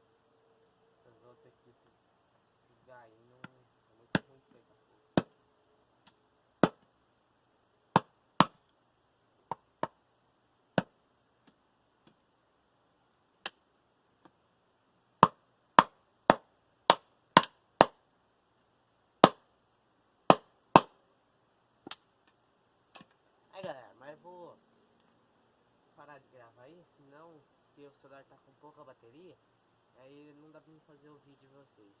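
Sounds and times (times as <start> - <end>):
machete chopping sticks: 20.3 - 20.9.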